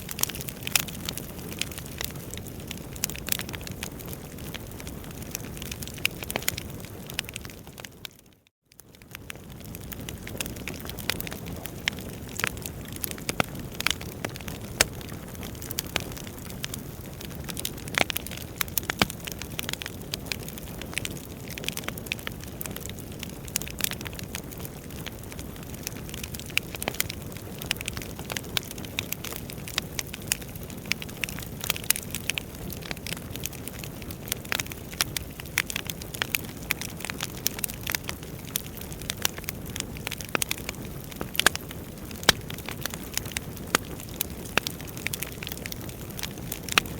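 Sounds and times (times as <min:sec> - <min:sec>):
crackles and pops of burning logs: 0:00.0 - 0:46.9.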